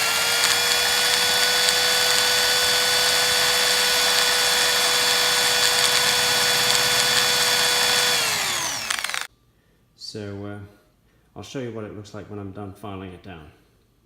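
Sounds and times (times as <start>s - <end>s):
small power tool whining: 0.0s - 9.3s.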